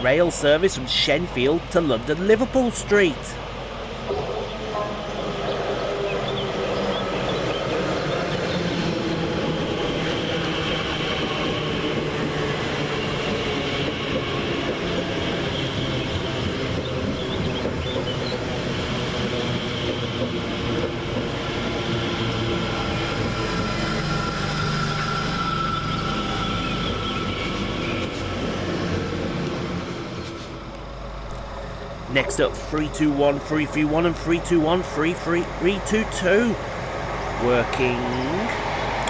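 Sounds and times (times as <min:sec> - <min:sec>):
electric train running: 0:00.0 - 0:39.0.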